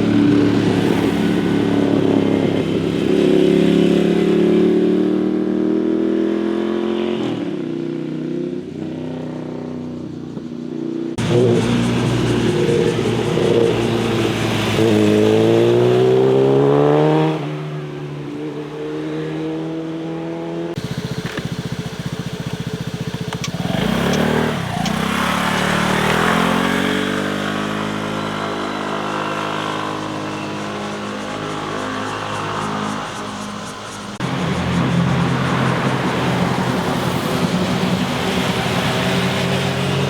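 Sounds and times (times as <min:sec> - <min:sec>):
motorcycle revving up: 0:00.0 - 0:09.9, 0:11.0 - 0:17.8, 0:18.4 - 0:40.0
slow pulsing engine: 0:11.1 - 0:15.8, 0:20.8 - 0:40.0
engine climbing in pitch: 0:11.1 - 0:17.6, 0:18.8 - 0:40.0.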